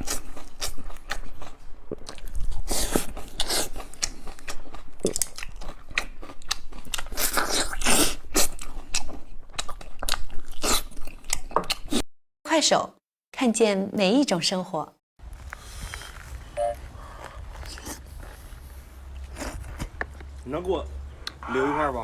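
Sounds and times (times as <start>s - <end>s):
person chewing and crunching food: 0.0s - 12.1s, 15.2s - 20.4s.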